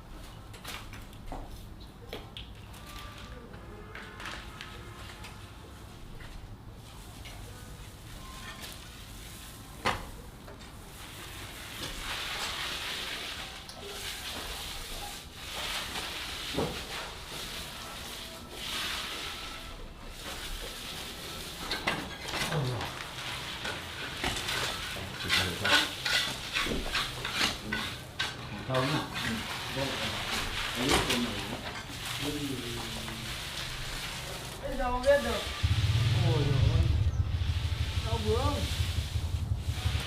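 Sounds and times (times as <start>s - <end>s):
utensils clinking on a pan: 21.5s - 29.5s.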